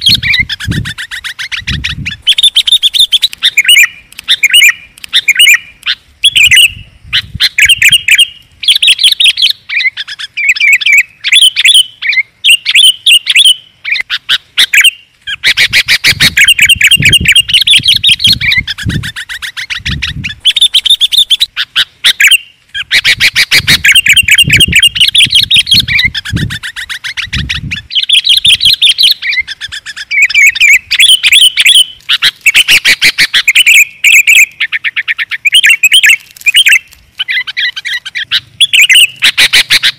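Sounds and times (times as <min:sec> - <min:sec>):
bulbuls chattering chirps and trills: 0:00.0 - 0:39.9.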